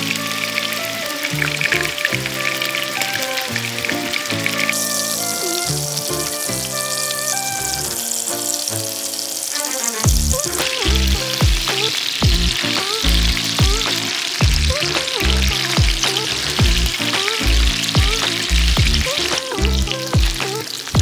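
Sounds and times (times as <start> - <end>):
chicken sizzling in a pan: 0.0 - 21.0
background music with beat: 10.0 - 21.0.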